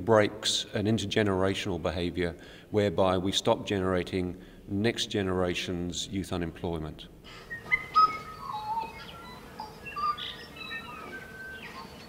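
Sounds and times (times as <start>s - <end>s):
steady background hiss: 0.0s - 12.0s
birds chirping and whistling: 7.3s - 12.0s.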